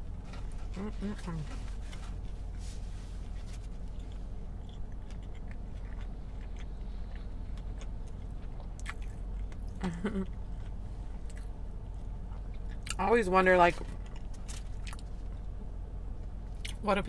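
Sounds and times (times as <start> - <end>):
steady low hum: 0.0 - 17.0
person humming: 0.8 - 1.5
person chewing: 3.4 - 13.0, 13.9 - 15.4.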